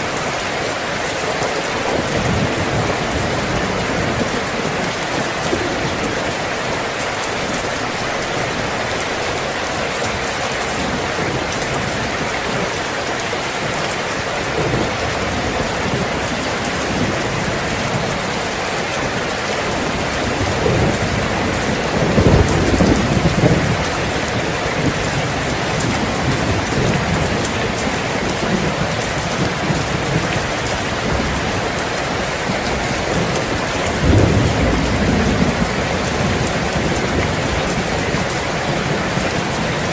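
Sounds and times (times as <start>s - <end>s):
steady rain: 0.0s - 39.9s
low thunder rolling: 19.8s - 28.8s, 32.6s - 39.9s.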